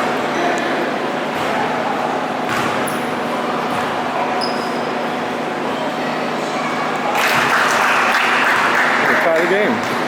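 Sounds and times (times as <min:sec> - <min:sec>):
crowd of spectators: 0:00.0 - 0:10.0
high squeak: 0:04.4 - 0:04.9.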